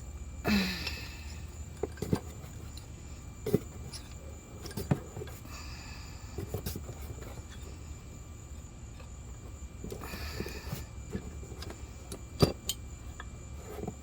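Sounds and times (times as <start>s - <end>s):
low steady hum: 0.0s - 14.0s
metal parts clicking: 3.5s - 5.4s.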